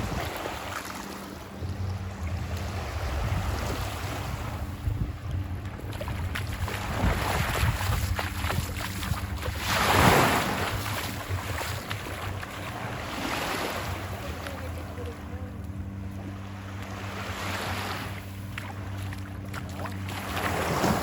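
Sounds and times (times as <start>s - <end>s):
wind rumble on microphone: 0.0s - 21.0s
ocean surf washing up: 6.6s - 15.1s.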